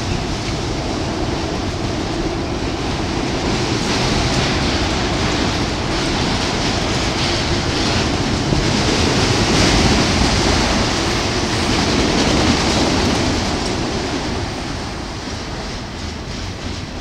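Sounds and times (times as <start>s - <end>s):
steel train wheels on rails: 0.0s - 17.0s.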